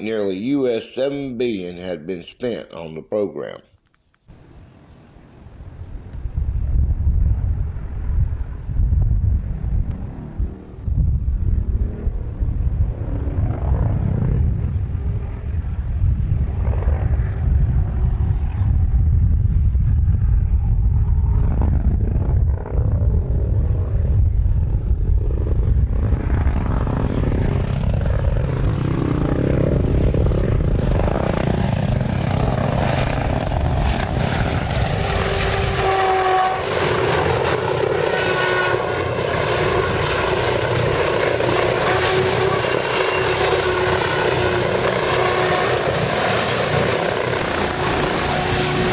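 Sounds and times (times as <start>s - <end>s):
helicopter engine and rotor: 7.3s - 48.9s
engine whining tones: 33.3s - 48.9s.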